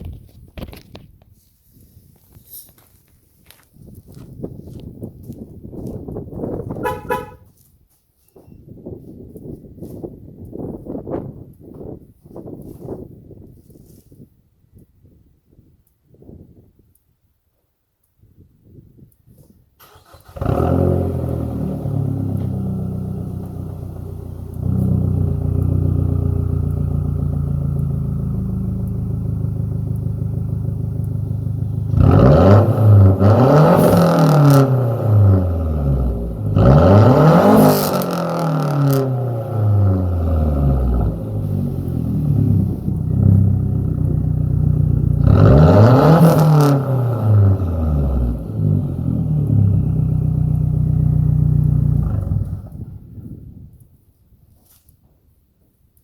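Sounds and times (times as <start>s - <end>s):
car engine idling and revving: 6.8s - 7.4s, 19.9s - 53.1s
car engine starting: 6.8s - 7.4s, 19.8s - 53.1s.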